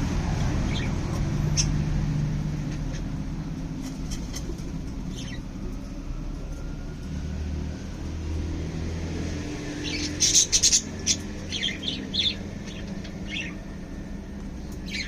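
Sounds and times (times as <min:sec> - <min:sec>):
small birds chirping: 0:00.5 - 0:02.0, 0:04.0 - 0:05.6, 0:09.6 - 0:15.0.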